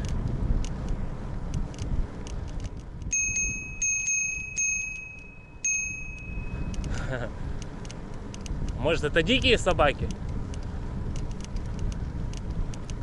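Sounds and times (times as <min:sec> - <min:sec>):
road rumble: 0:00.0 - 0:13.0
wind: 0:00.0 - 0:13.0
bicycle bell ringing: 0:03.1 - 0:07.3.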